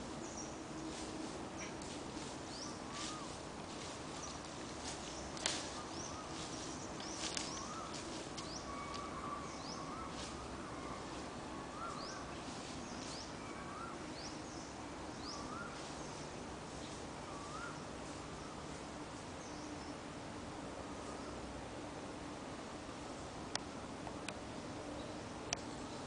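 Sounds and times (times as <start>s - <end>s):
birds chirping: 0.0s - 20.1s
background hiss: 0.0s - 26.0s.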